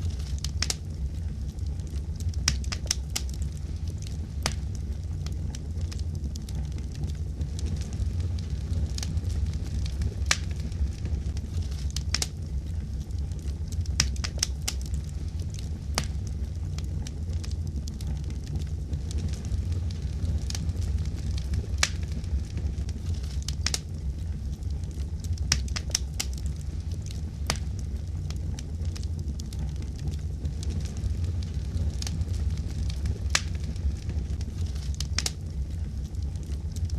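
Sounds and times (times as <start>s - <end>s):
steady low rumble: 0.0s - 36.9s
wood fire crackling: 0.0s - 36.9s.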